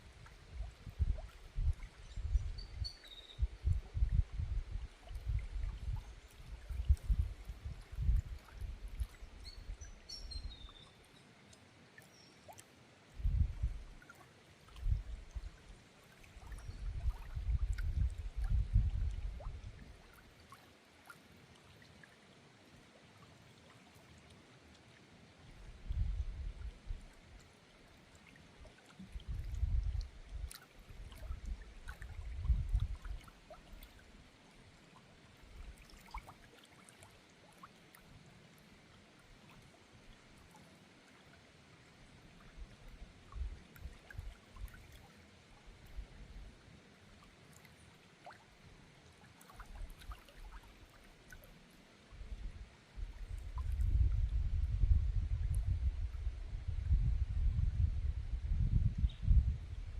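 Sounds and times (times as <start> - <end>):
faint running water: 0.0 - 56.6
small river trickling: 0.0 - 59.9
wind gusts on microphone: 0.5 - 9.1, 13.2 - 13.9, 16.6 - 19.9, 25.7 - 27.0, 29.2 - 30.5, 31.1 - 33.2, 52.2 - 59.9
faint high chirps: 2.1 - 3.5.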